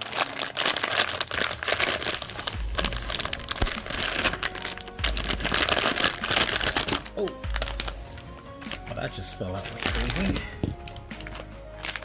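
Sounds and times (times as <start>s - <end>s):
cardboard tearing and crinkling: 0.0s - 12.0s
dull handling knocks: 10.0s - 11.0s.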